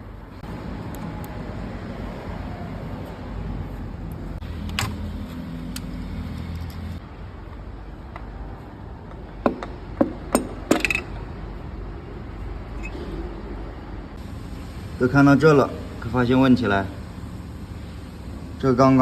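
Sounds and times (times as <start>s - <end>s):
sharp knocks of metal: 9.4s - 11.2s.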